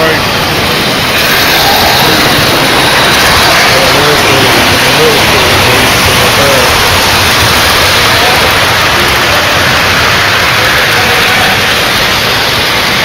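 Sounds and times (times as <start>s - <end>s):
faint crowd voices: 0.0s - 13.0s
model trains running on track: 0.0s - 13.0s.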